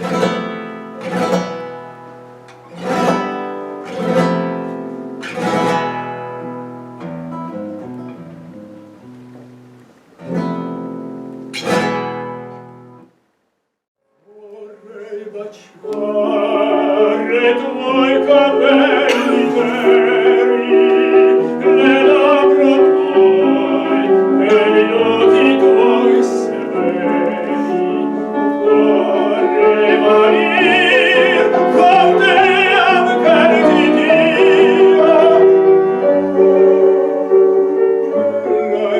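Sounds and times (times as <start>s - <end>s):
acoustic guitar strummed chords: 0.0s - 13.2s, 15.4s - 38.9s
piano accompaniment: 0.0s - 13.2s, 14.8s - 38.9s
person singing with vibrato: 14.1s - 37.4s, 38.1s - 38.9s.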